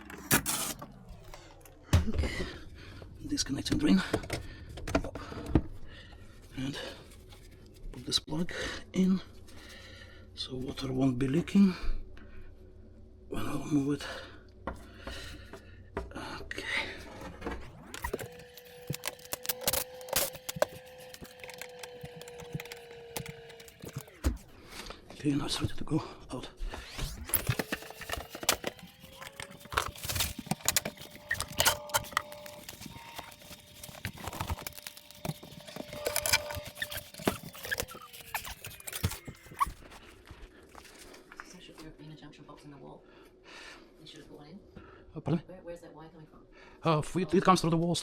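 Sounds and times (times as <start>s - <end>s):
cordless drill motor spinning: 17.7s - 24.6s, 26.8s - 39.9s.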